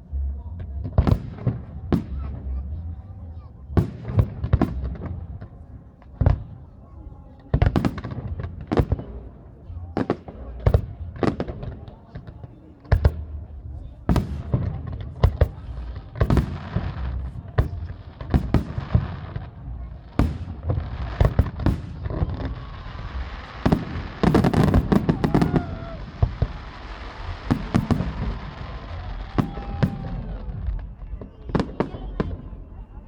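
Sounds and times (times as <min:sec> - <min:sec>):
fireworks crackle: 0:14.1 - 0:32.8
fireworks bursts banging: 0:14.1 - 0:32.9.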